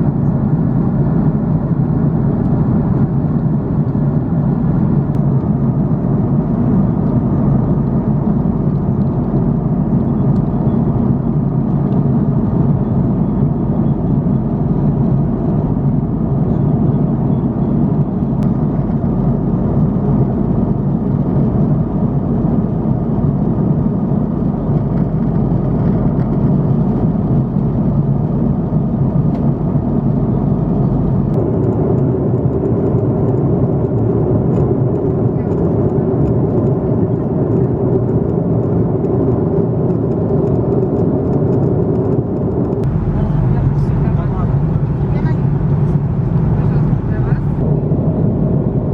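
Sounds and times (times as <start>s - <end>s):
airliner cabin engine rumble: 0.0s - 48.9s.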